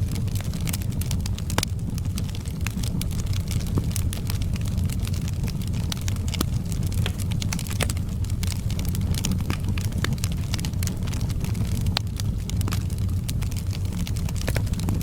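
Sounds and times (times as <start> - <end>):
log fire crackling: 0.0 - 15.0.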